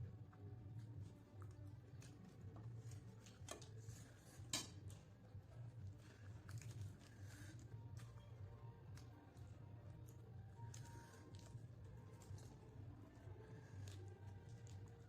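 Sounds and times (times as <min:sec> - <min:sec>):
low steady hum: 0:00.0 - 0:15.0
cutlery clicking on a plate: 0:04.5 - 0:04.8.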